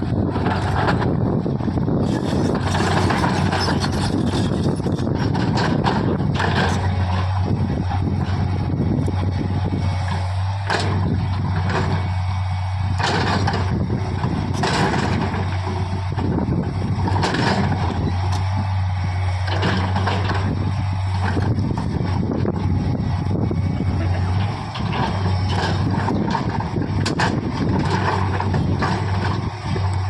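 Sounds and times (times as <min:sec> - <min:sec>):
backhoe diesel engine running: 0:00.0 - 0:30.0
machine knocks and clanks: 0:13.0 - 0:16.3, 0:17.0 - 0:18.0, 0:19.5 - 0:20.5, 0:24.1 - 0:29.4.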